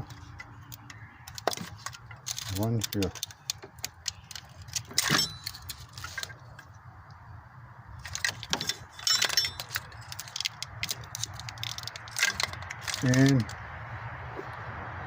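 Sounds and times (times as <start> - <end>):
plastic connectors clicking: 0.4 - 6.2, 9.6 - 13.6.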